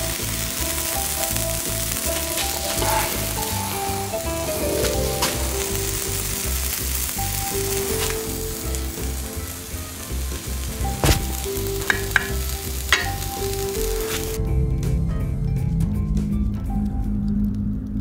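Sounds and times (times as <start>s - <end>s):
burger patties sizzling: 0.0s - 14.4s
background music with steady beat: 0.0s - 17.4s.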